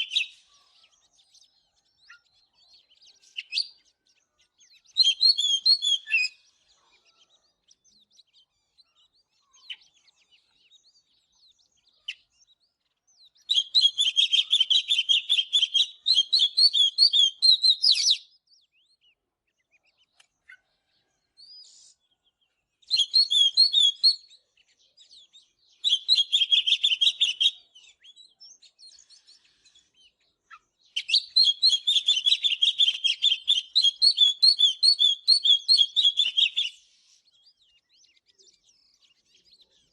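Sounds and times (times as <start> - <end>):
songbird singing fast high notes: 22.9 - 24.2, 31.0 - 36.8.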